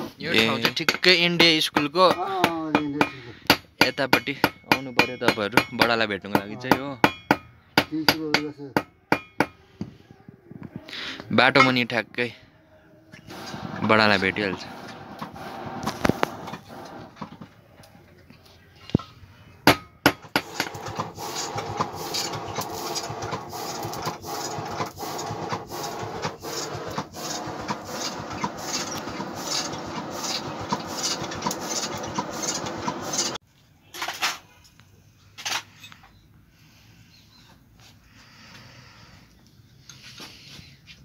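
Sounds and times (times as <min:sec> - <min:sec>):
hammer striking iron on anvil: 0:00.6 - 0:09.6, 0:19.6 - 0:20.8.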